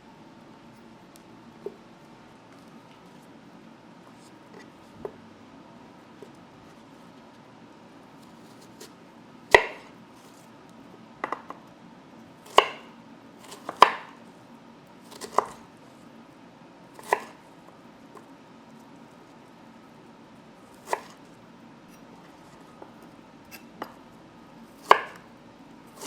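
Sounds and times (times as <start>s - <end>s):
knife chopping on cutting board: 9.5s - 10.0s, 12.5s - 14.2s, 15.1s - 15.6s, 17.0s - 17.4s, 20.7s - 21.2s, 24.8s - 25.3s.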